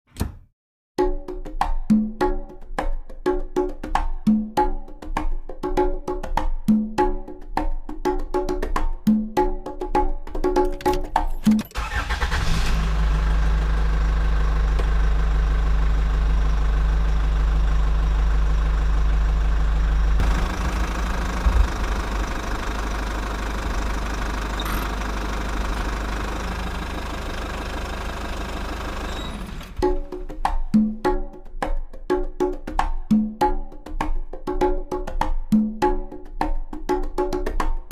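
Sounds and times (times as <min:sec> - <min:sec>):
tractor engine idling: 0:11.8 - 0:29.9.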